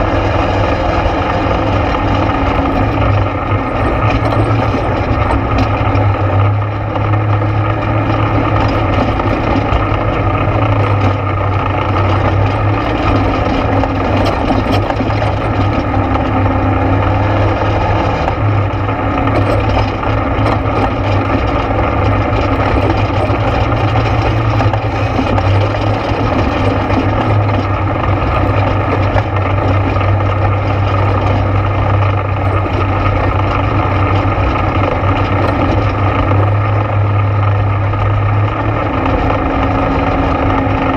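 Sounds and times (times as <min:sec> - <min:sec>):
atv engine droning: 0:00.0 - 0:40.9.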